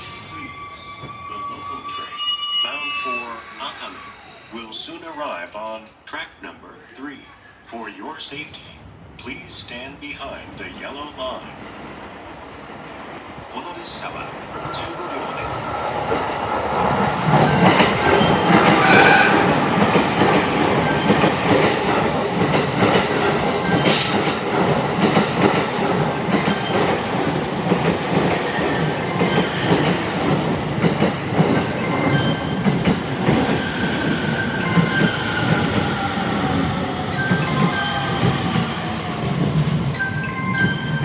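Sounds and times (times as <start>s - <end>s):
high wheel squeals: 0.0s - 6.3s, 17.6s - 25.0s
train wheels rolling on rail: 0.0s - 7.0s, 11.5s - 41.0s.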